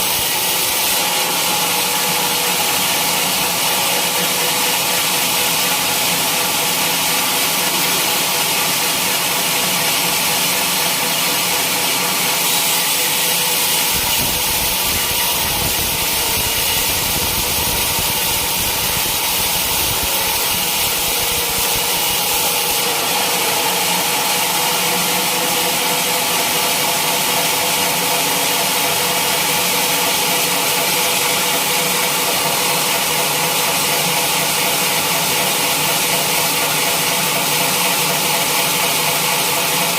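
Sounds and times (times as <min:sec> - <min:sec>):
machinery humming: 0:00.0 - 0:29.3.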